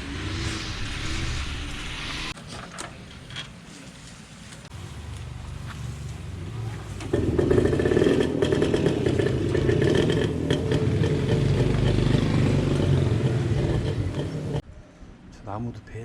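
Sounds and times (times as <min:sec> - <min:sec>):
brush cutter engine revving: 0:04.8 - 0:14.6.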